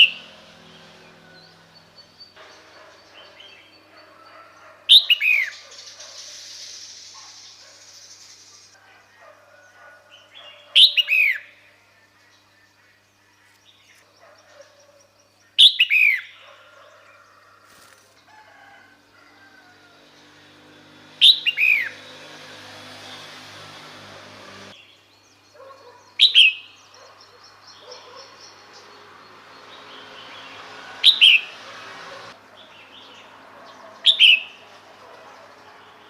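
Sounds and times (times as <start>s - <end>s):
faint bird chirping: 0.0s - 17.8s, 24.8s - 31.3s
bird calls sweeping downward: 20.4s - 24.7s, 30.0s - 32.4s.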